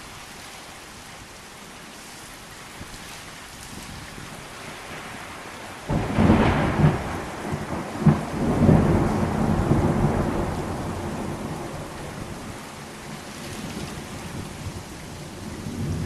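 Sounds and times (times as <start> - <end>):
steady rain: 0.0 - 16.0
thunder clap and rumble: 5.9 - 12.6, 13.7 - 16.0.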